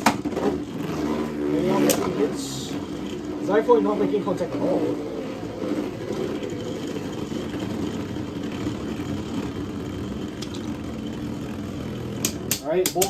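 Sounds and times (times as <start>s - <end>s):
spinning tops whirring in plastic stadium: 0.0s - 13.0s.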